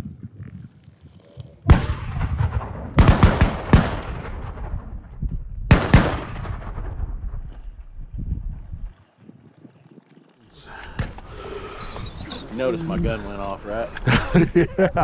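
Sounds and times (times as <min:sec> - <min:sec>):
shotgun blasts: 0:01.7 - 0:05.1, 0:05.7 - 0:07.6.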